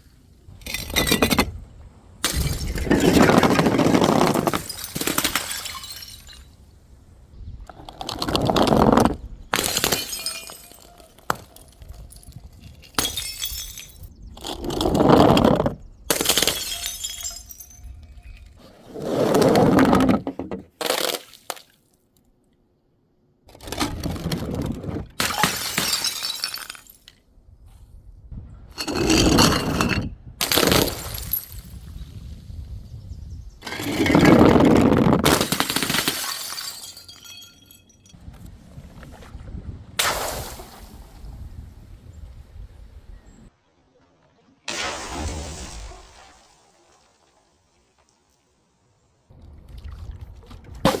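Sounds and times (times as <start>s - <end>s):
glass bottles smashing: 0.6s - 1.5s, 2.2s - 6.6s, 9.5s - 14.8s, 16.1s - 18.5s, 25.2s - 27.2s, 28.8s - 31.9s, 33.6s - 38.2s.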